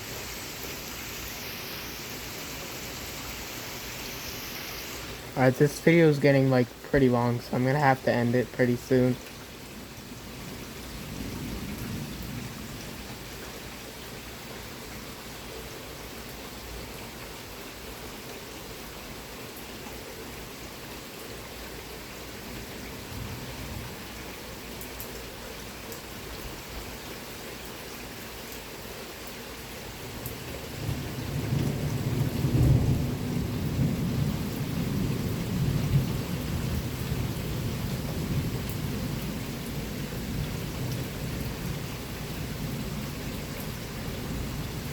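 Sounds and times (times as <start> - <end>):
heavy rain: 0.0 - 44.9
thunder rumbling: 11.0 - 12.9, 30.8 - 44.9.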